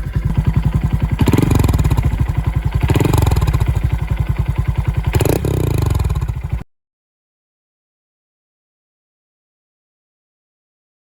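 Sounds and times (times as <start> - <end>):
motorcycle engine revving: 0.0 - 6.6.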